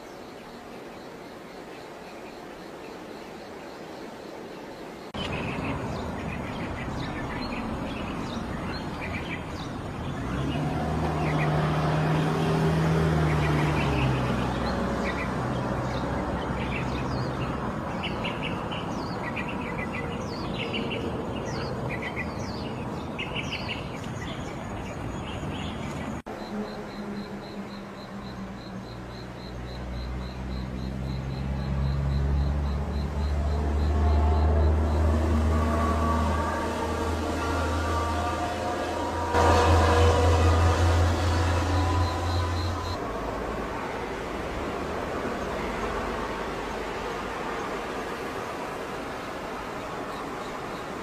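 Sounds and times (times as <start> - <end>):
low engine-like drone: 26.2 - 50.9.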